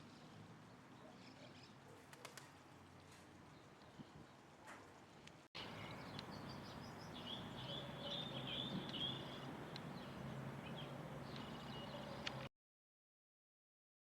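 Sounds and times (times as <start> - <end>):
small birds chirping: 5.6 - 12.5.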